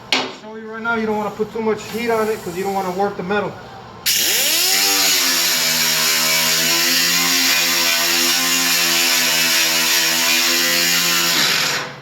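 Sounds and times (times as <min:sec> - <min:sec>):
grinder grinding metal: 0:04.1 - 0:12.0.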